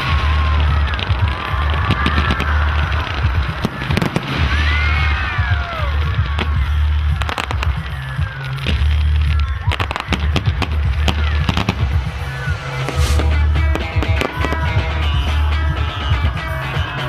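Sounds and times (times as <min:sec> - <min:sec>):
deep rumble: 0:00.0 - 0:17.0
fireworks crackling and popping: 0:00.0 - 0:17.0
falling whistling tones: 0:11.0 - 0:17.0.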